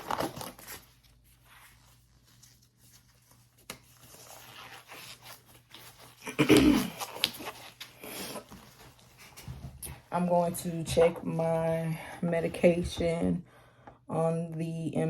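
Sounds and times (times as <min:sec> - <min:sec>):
gloves rustling and stretching: 0:00.0 - 0:11.8.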